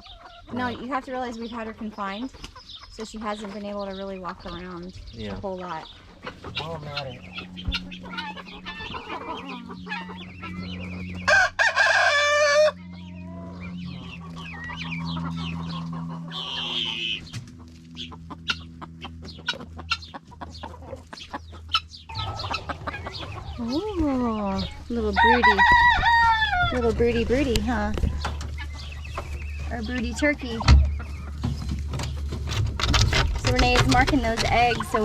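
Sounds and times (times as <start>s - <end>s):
chickens clucking: 0.0s - 35.0s
steady low hum: 0.0s - 35.0s
rooster crowing: 11.2s - 13.9s, 25.0s - 26.9s.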